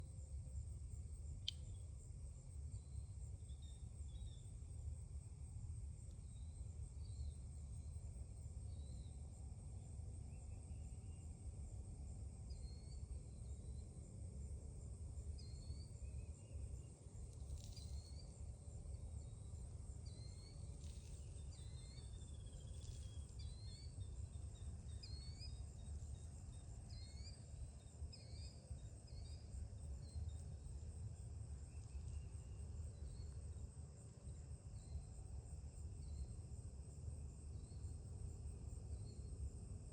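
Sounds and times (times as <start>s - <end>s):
low steady rumble: 0.0s - 39.9s
high insect drone: 15.1s - 39.9s.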